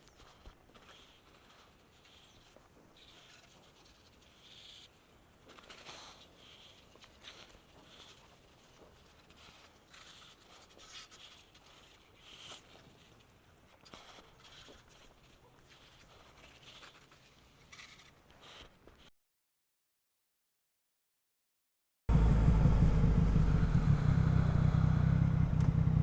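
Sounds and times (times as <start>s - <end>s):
faint scratchy rustling: 0.0s - 19.1s.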